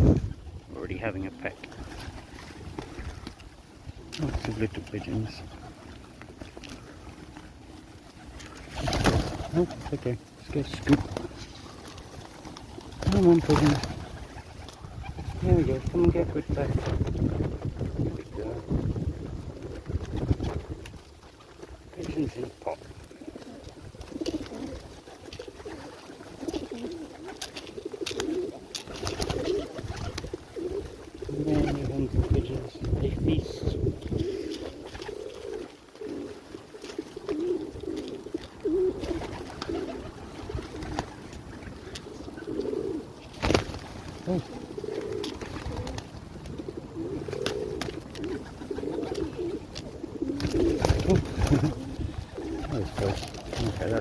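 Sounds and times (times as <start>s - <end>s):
pigeons cooing: 0.0s - 54.0s
beaks pecking at grain: 0.9s - 16.3s, 20.4s - 33.0s, 34.0s - 54.0s.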